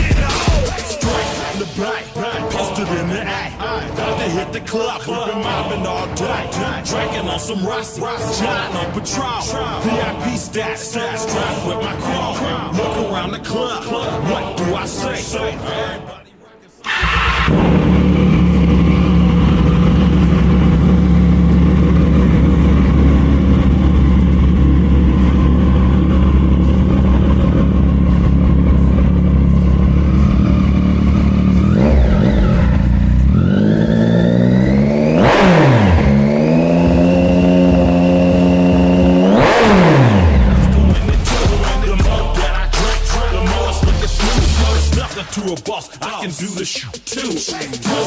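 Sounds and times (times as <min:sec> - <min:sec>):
motorcycle engine idling and revving: 0:00.0 - 0:01.4, 0:16.8 - 0:45.2.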